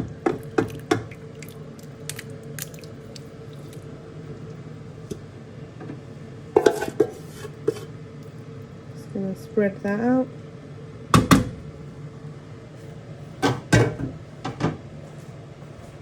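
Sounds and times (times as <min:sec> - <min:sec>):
wet food squelching: 0:00.4 - 0:04.6.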